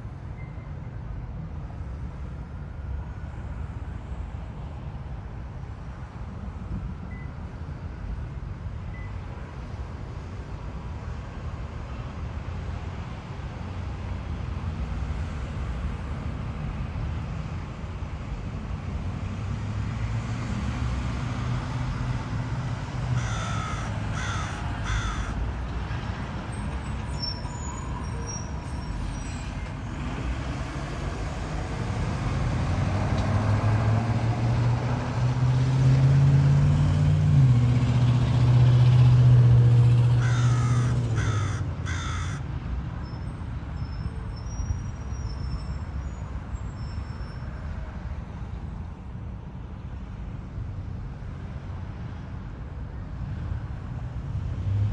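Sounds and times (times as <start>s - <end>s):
crow cawing: 23.2s - 25.4s, 40.2s - 42.4s.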